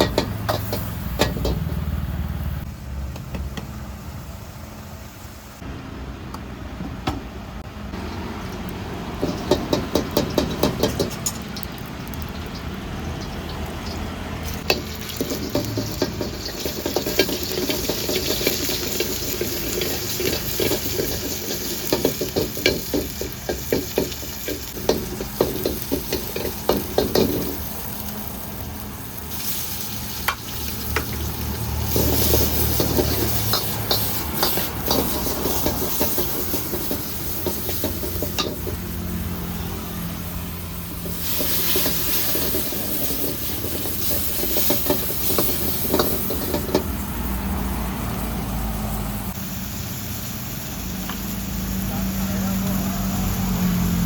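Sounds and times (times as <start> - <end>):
food sizzling: 0.0 - 2.7, 7.6 - 54.0
metal spatula scraping wok: 13.2 - 28.0, 29.3 - 47.0.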